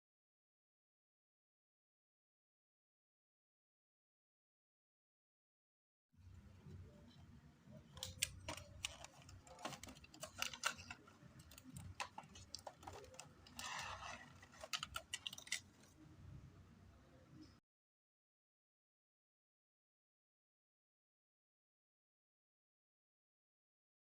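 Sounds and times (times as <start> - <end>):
plastic case clicks and rattles: 8.0 - 15.9.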